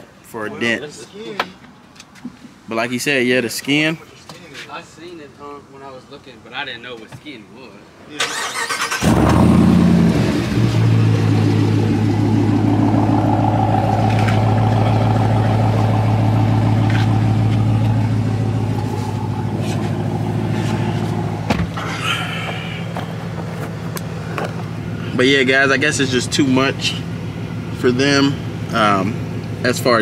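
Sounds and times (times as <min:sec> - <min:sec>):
car engine idling: 0:09.0 - 0:30.0.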